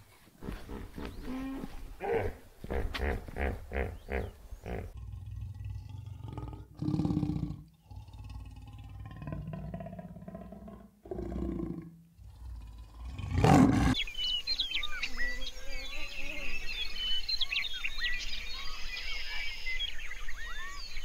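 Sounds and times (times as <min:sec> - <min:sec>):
small birds chirping: 0:00.4 - 0:06.6, 0:12.2 - 0:21.0
jaguar growling and roaring: 0:04.0 - 0:14.0.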